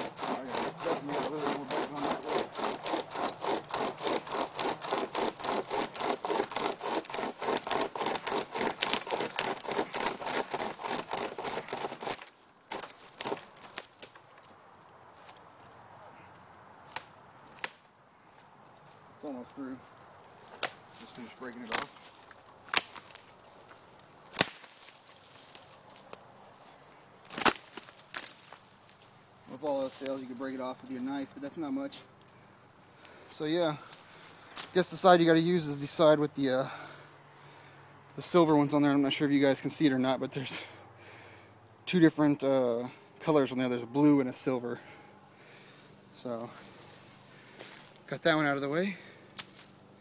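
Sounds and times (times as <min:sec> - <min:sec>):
pocket chainsaw rasping through wood: 0:00.0 - 0:13.9, 0:44.4 - 0:49.8
wood cracking: 0:00.0 - 0:33.2.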